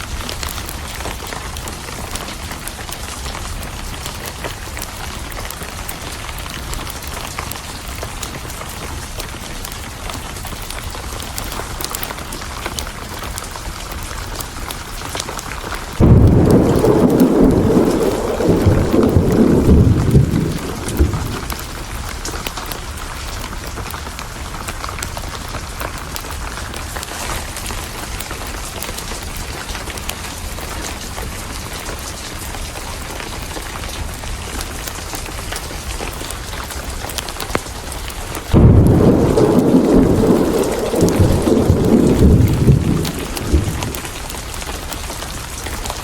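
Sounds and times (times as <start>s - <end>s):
steady rain: 0.0s - 46.0s
thunder rumbling: 15.8s - 22.5s, 38.5s - 46.0s.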